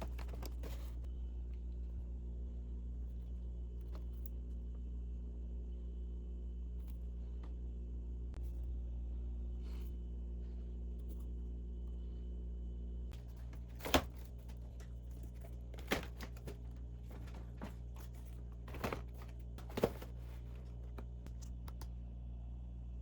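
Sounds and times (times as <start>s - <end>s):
steady low hum: 0.0s - 23.0s
household items clicking and knocking: 13.2s - 21.6s.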